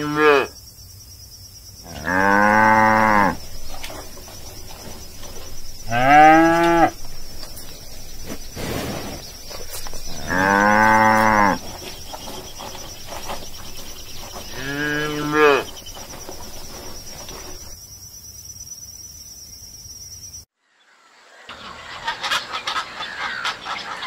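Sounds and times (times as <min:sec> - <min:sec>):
cows mooing: 0:00.0 - 0:00.5, 0:01.9 - 0:17.8.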